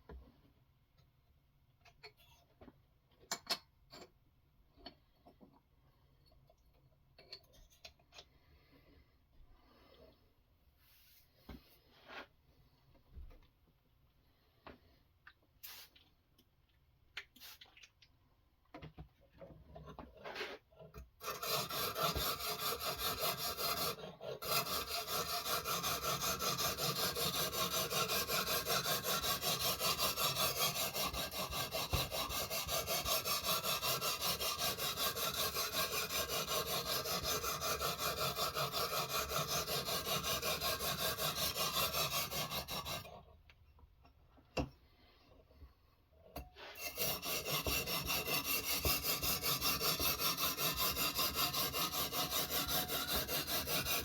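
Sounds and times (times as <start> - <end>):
knife scraping on sharpening stone: 46.4 - 54.0.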